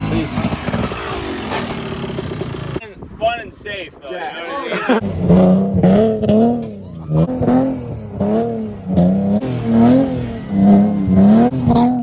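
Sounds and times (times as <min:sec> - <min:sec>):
car engine revving: 0:05.0 - 0:12.0.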